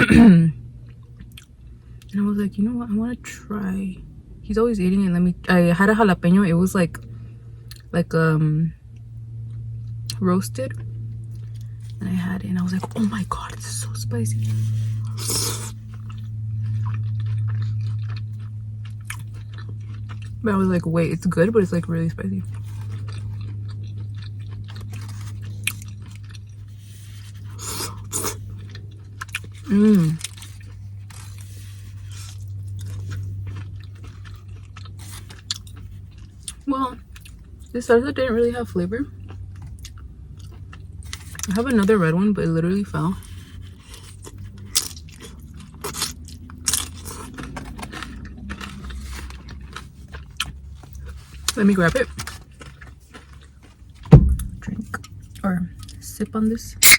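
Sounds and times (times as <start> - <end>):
chewing and crunching chips: 0.0 - 8.0, 8.7 - 56.9
steady low hum: 0.0 - 56.9.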